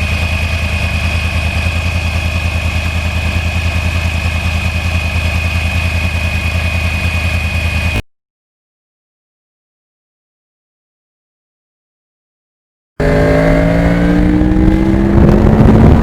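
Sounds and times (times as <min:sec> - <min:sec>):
motorcycle engine idling: 0:00.0 - 0:08.0, 0:13.0 - 0:16.0
high whine: 0:13.0 - 0:16.0.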